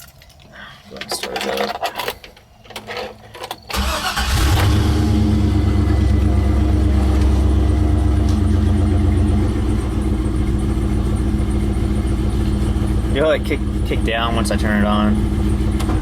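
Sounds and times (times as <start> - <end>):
car engine cranking: 1.1 - 16.0
car engine idling: 3.7 - 16.0.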